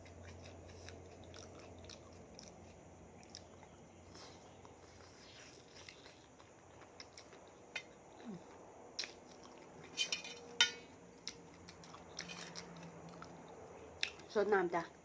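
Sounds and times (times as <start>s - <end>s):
person eating: 0.0s - 10.2s, 11.2s - 14.3s
utensils clinking on a dish: 10.0s - 10.9s.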